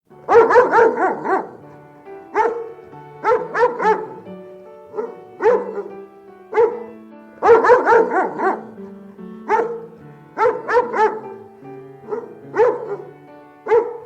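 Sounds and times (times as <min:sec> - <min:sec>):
background music sustained notes: 0:00.1 - 0:14.0
dog barking: 0:00.3 - 0:08.9, 0:09.5 - 0:14.0.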